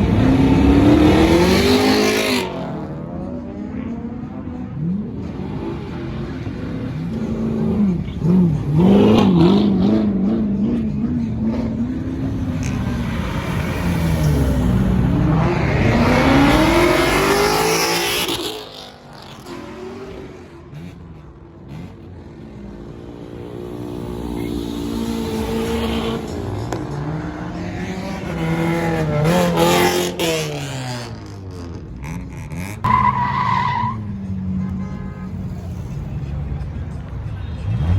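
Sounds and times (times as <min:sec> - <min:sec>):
car accelerating hard: 0:00.0 - 0:22.0
car engines revving: 0:00.0 - 0:37.9.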